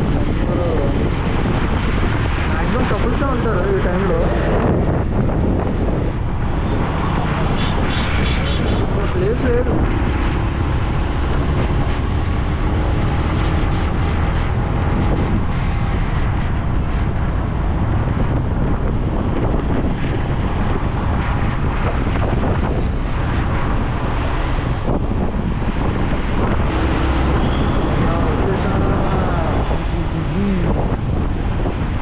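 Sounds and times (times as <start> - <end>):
road noise: 0.0 - 32.0
wind on microphone: 0.0 - 32.0
motorcycle engine: 26.6 - 29.4.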